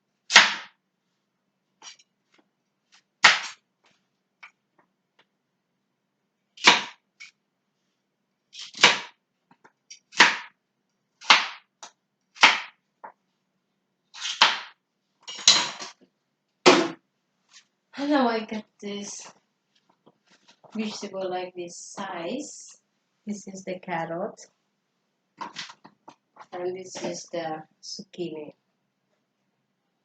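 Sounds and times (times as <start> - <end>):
knife chopping on cutting board: 11.2 - 11.6, 12.4 - 12.7.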